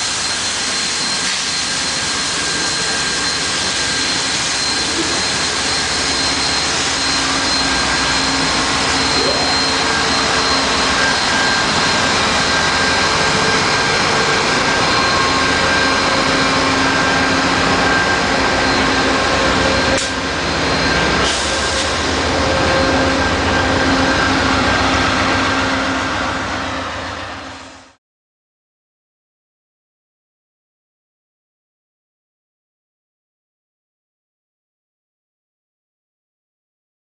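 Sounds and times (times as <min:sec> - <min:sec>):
constant whine: 0:00.0 - 0:28.0
locomotive engine drone: 0:00.0 - 0:28.0
train rolling past: 0:00.0 - 0:28.0.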